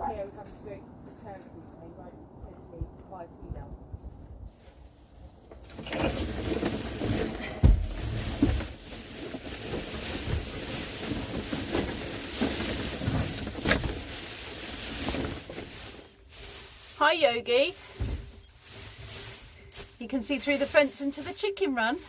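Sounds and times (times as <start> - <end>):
wind rumbling on microphone: 0.0 - 16.4
microphone handling thumps: 5.5 - 14.3, 17.9 - 19.2.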